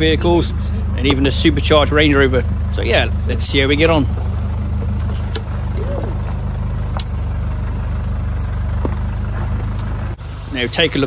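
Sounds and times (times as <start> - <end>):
engine running at low revs: 0.0 - 11.0.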